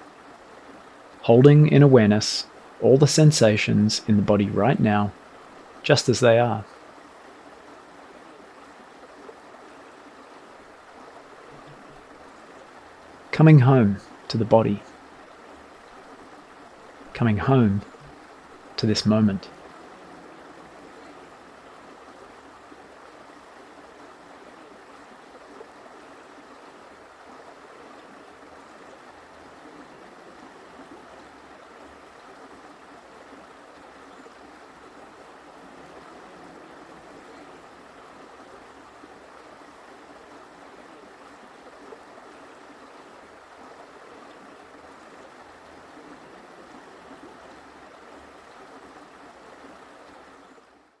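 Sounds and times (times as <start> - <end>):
creek water flowing: 0.0 - 51.0.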